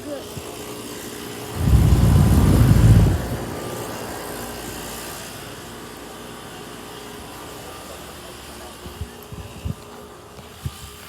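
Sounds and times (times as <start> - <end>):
air conditioner units humming: 1.3 - 3.9
loud low rumble: 1.6 - 3.8.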